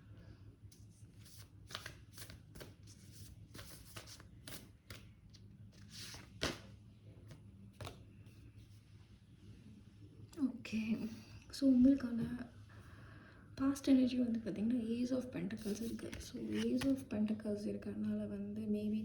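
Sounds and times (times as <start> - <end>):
faint low hum: 0.0 - 19.0
cards being shuffled: 0.7 - 8.0, 15.6 - 17.0.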